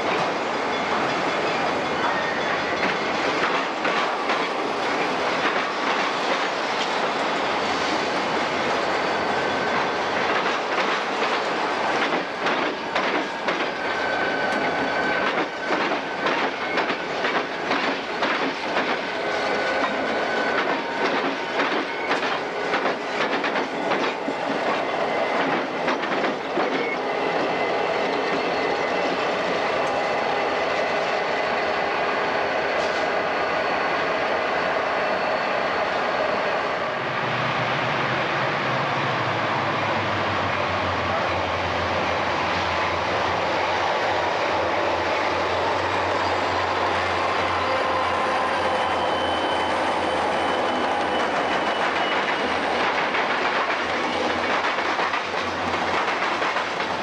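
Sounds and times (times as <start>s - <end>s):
freight train rumble: 0.0s - 57.0s
wheels clickety-clack over joints: 2.8s - 7.0s, 10.1s - 13.8s, 14.5s - 19.1s, 19.8s - 24.8s, 25.4s - 30.0s, 51.1s - 57.0s
faint wheel squeal: 46.2s - 52.7s.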